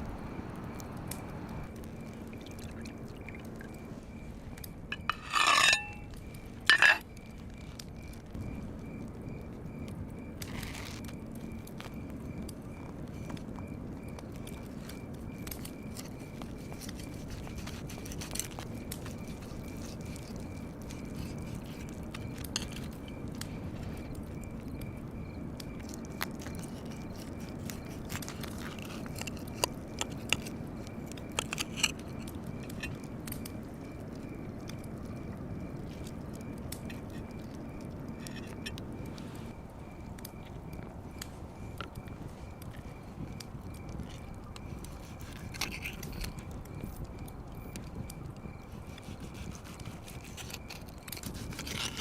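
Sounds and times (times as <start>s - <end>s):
low outdoor background: 0.0s - 52.0s
small clicks and crackles: 0.0s - 52.0s.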